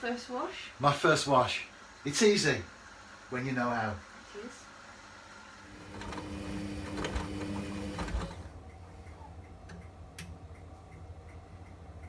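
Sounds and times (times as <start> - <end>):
washing machine hum: 0.0 - 12.0
washing machine clicks: 5.8 - 12.0
light regular ticking: 8.5 - 12.0.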